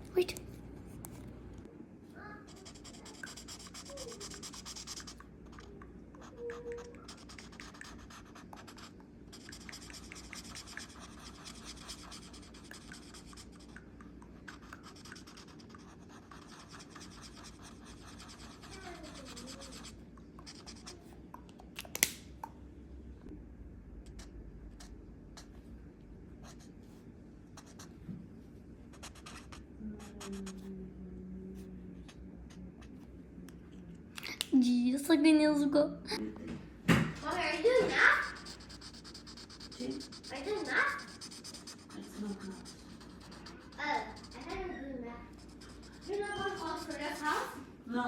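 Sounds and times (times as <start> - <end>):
drawing tool scratching on paper: 2.5 - 5.6, 7.0 - 13.7, 14.5 - 21.0, 37.2 - 44.8, 45.4 - 47.6.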